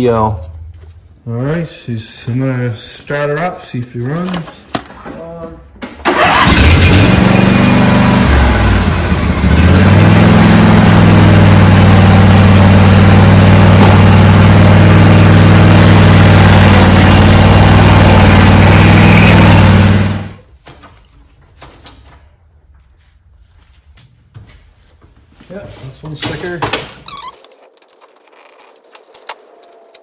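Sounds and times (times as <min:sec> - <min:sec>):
lawn tractor engine running: 0:06.0 - 0:20.4.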